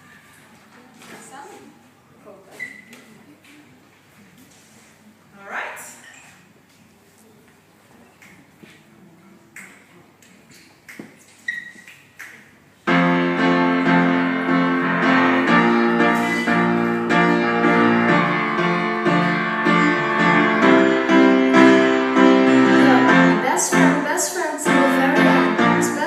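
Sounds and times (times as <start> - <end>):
piano playing sustained chords: 12.9 - 26.0.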